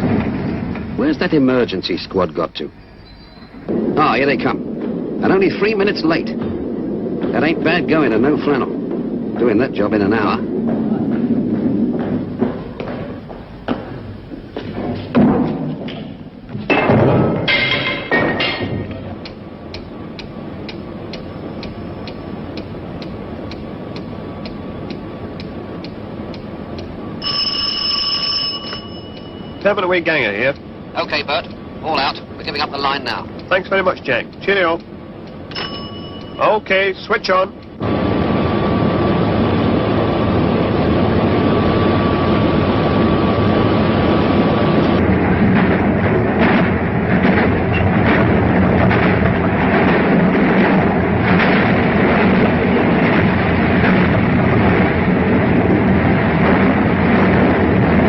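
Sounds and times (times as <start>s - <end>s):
constant low hum: 0.0s - 58.0s
underground electric train roar: 0.0s - 58.0s
thin high whine: 1.0s - 15.1s, 17.6s - 45.4s
sharp knocks: 3.6s - 27.3s
clock ticking: 19.2s - 27.5s, 28.6s - 37.8s
telephone bell ringing: 27.2s - 29.7s, 35.5s - 36.6s.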